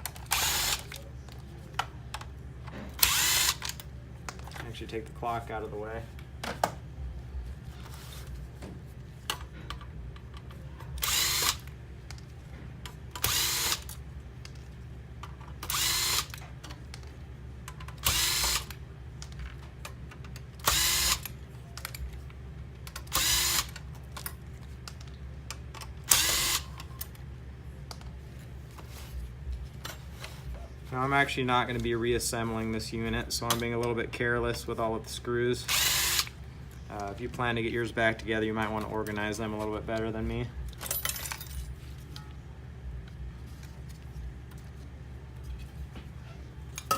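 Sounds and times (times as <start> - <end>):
power screwdriver whirring: 0.1 - 1.0, 3.0 - 3.8, 11.0 - 11.7, 13.2 - 14.0, 15.6 - 16.4, 18.0 - 18.7, 20.6 - 21.3, 23.1 - 23.8, 26.1 - 26.7, 35.7 - 36.3.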